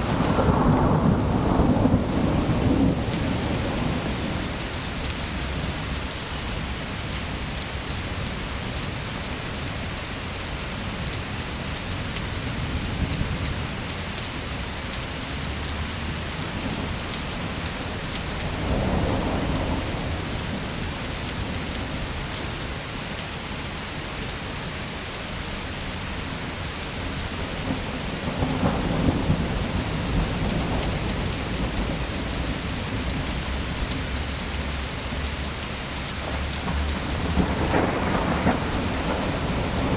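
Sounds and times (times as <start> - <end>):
low rolls of thunder: 0.0 - 6.0, 16.5 - 21.8, 27.2 - 34.8, 36.2 - 39.9
steady rain falling: 0.0 - 39.9.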